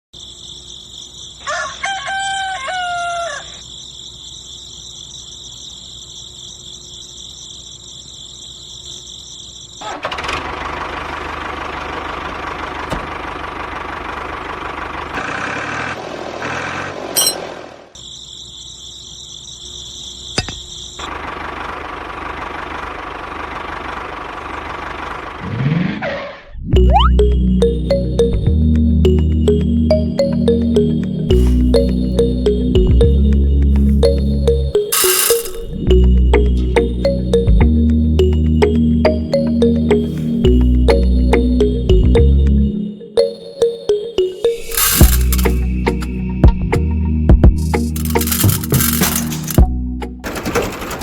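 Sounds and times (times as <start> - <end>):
rooster crowing: 1.4 - 3.6.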